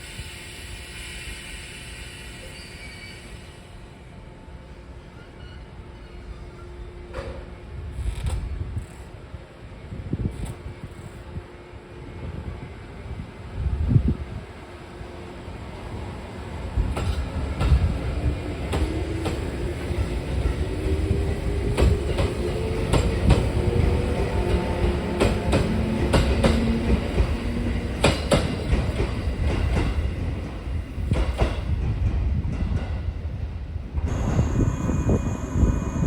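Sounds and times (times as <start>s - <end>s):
train wheels rumbling: 13.2s - 36.0s.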